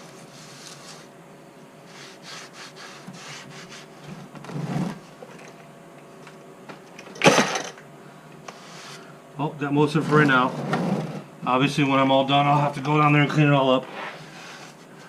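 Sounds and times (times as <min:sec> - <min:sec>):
scrubbing concrete floor: 0:01.9 - 0:04.7.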